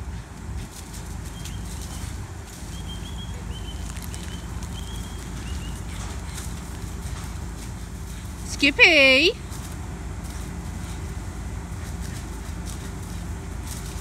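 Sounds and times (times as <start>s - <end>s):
low outdoor rumble: 0.0s - 14.0s
small bird chirping: 2.7s - 6.4s.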